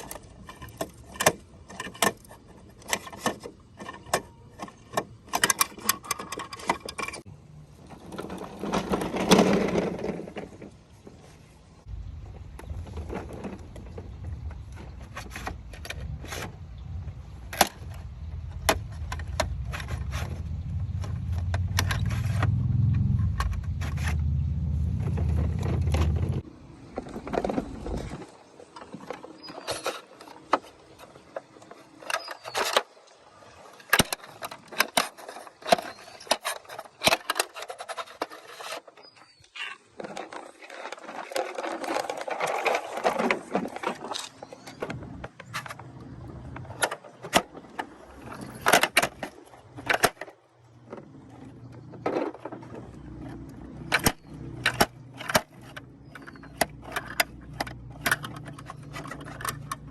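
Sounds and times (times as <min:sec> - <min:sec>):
plastic toy parts clicking: 0:00.0 - 0:07.2, 0:53.8 - 0:59.9
toy plastic wheels rolling: 0:00.0 - 0:11.4, 0:12.3 - 0:16.6, 0:17.3 - 0:33.0, 0:33.8 - 0:59.9.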